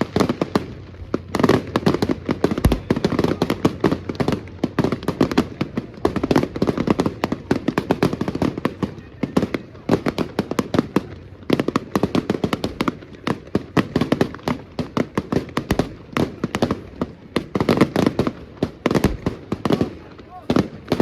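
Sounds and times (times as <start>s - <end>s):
firecrackers cracking and banging: 0.0s - 21.0s.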